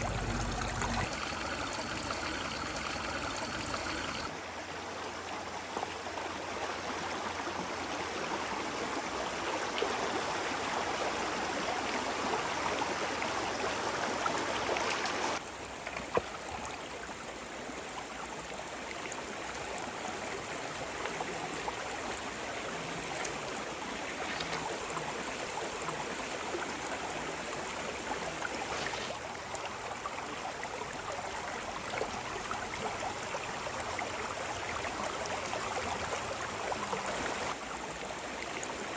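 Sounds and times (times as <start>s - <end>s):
stream water rushing: 0.0s - 5.2s.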